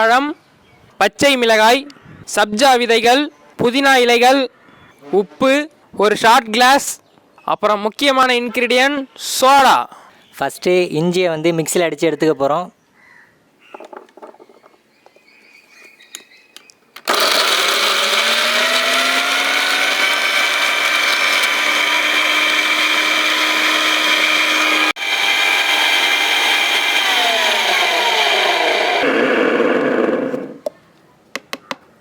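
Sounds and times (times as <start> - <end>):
mixer grinder motor whining: 17.0 - 30.7.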